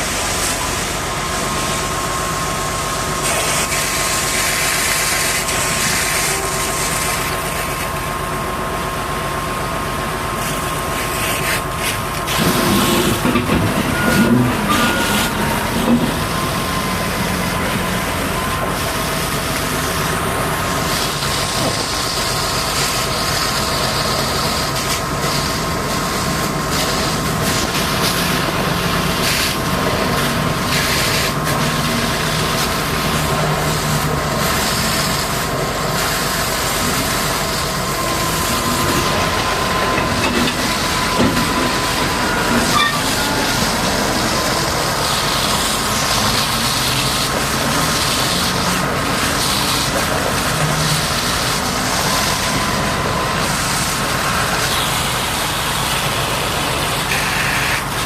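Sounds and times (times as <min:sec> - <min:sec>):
pressure washer whine: 0:00.0 - 0:58.0
hiss of water spray: 0:02.6 - 0:07.9, 0:18.7 - 0:58.0.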